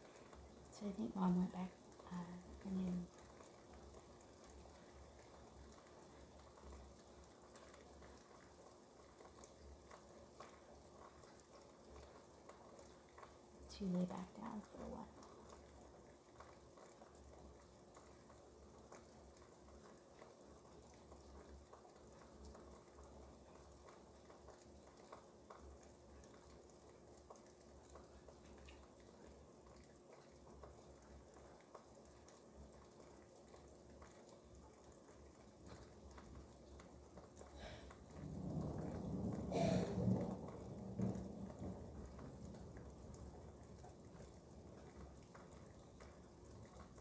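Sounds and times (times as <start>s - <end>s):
low steady hum: 0.0s - 16.6s
faint rain: 0.0s - 47.0s
raindrops ticking: 0.0s - 47.0s.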